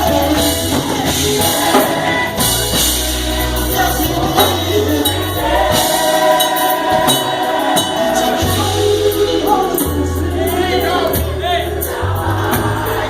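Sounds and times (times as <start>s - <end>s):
band playing: 0.0s - 13.0s
choir singing: 0.0s - 13.0s
deep bass notes: 0.0s - 13.0s.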